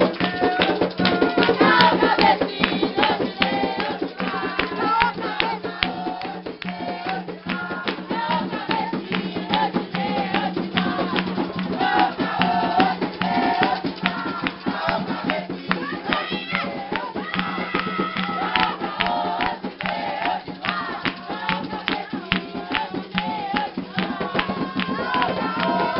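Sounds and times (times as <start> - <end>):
drums beating fast rhythm: 0.0 - 25.9
group singing a chant: 0.0 - 25.9.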